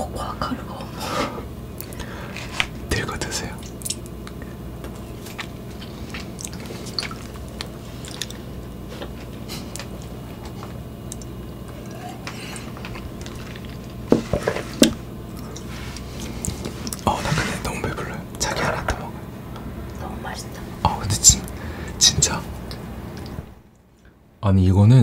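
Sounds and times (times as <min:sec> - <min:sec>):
soft chewing: 0:01.8 - 0:14.7, 0:15.3 - 0:21.6
wet mouth clicks: 0:03.6 - 0:04.4, 0:05.8 - 0:08.4, 0:11.0 - 0:11.4.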